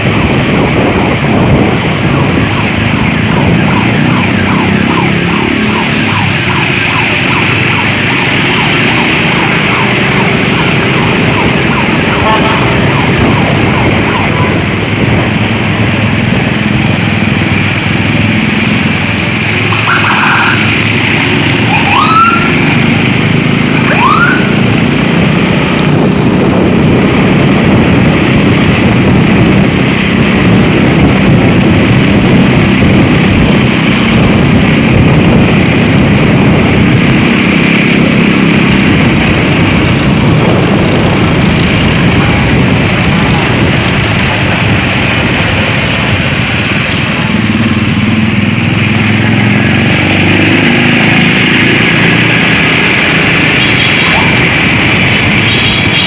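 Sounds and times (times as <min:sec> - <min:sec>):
road and engine noise: 0:00.0 - 0:56.0
siren: 0:01.0 - 0:15.7, 0:19.2 - 0:25.0, 0:50.2 - 0:56.0
short rising siren chirps: 0:21.6 - 0:22.7, 0:23.8 - 0:24.6.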